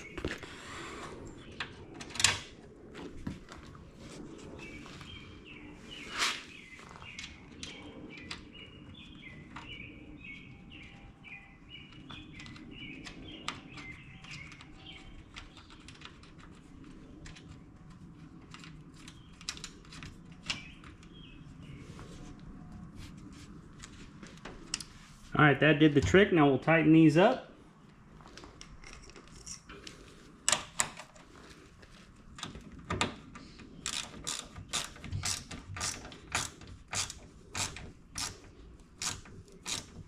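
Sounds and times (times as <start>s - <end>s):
birds chirping: 3.3s - 16.1s, 20.4s - 22.7s.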